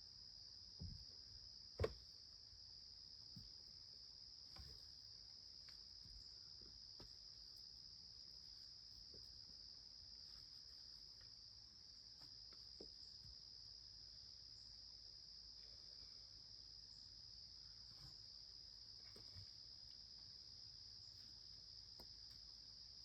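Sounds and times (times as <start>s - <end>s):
crickets chirring: 0.0s - 23.0s.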